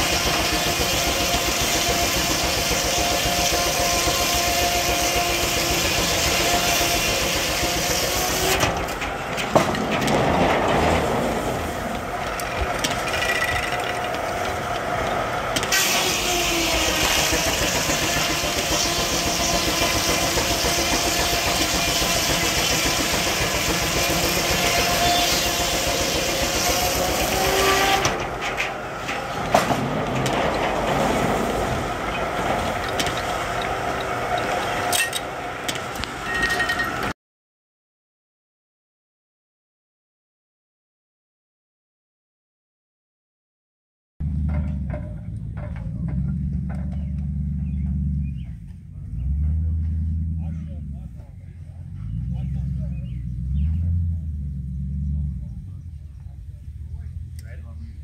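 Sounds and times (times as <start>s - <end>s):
sawmill machinery whine: 0.0s - 37.1s.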